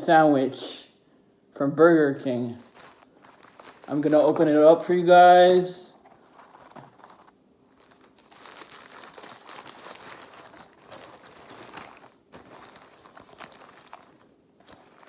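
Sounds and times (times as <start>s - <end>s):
paper wrapper crinkling: 2.5s - 4.8s, 5.9s - 15.0s.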